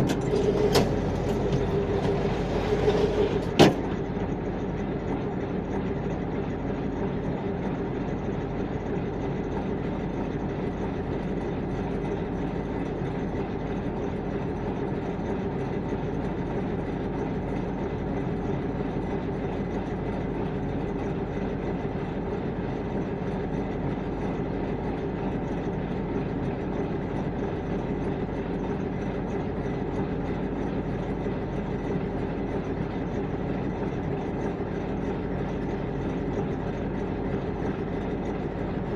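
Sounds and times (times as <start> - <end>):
heavy vehicle engine droning: 0.0 - 4.5.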